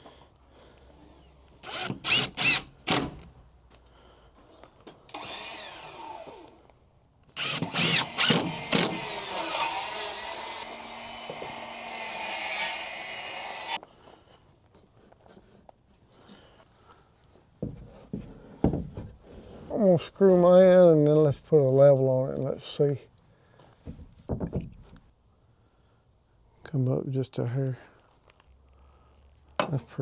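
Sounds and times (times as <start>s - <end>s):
power drill driving screws into wood: 1.6s - 3.4s, 5.1s - 6.6s, 7.4s - 13.8s.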